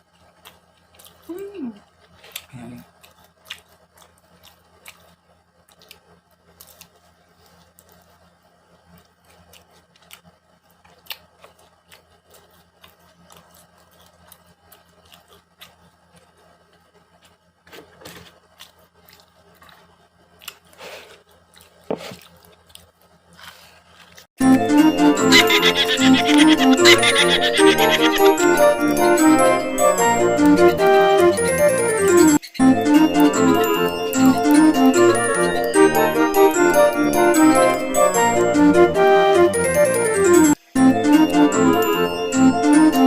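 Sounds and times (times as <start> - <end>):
food chewing and crunching: 0.0 - 24.3.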